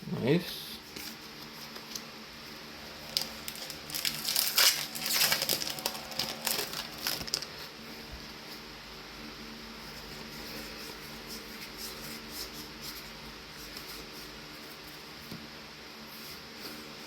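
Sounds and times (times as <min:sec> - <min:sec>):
cards and wrapper rustling: 0:02.9 - 0:07.7.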